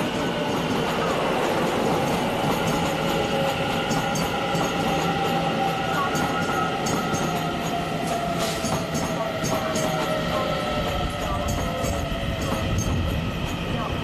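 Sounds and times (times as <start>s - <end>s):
train running noise: 0.0s - 14.0s.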